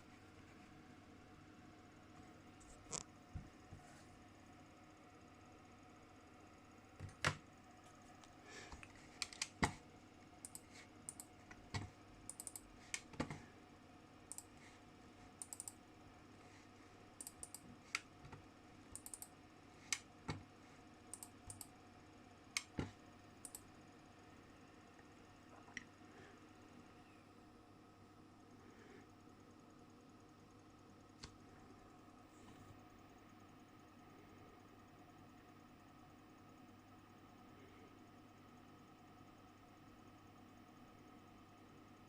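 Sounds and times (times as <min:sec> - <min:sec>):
steady low hum: 0:00.0 - 0:42.0
computer keyboard key clicks: 0:12.3 - 0:13.1, 0:15.4 - 0:15.8, 0:19.0 - 0:19.3.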